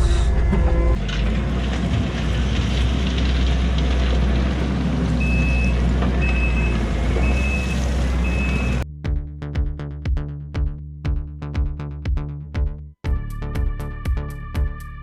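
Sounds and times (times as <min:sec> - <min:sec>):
diesel engine running: 0:00.0 - 0:08.8
reversing alarm beeping: 0:05.2 - 0:08.8.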